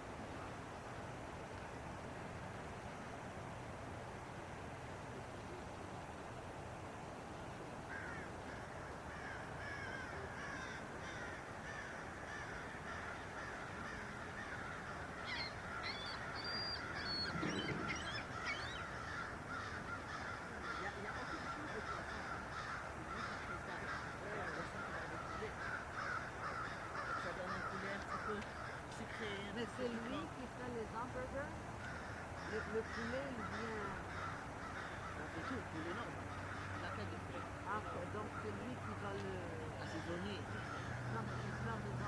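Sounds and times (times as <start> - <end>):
steady background hiss: 0.0 - 42.0
birds chirping and calling: 7.9 - 30.3, 31.8 - 42.0.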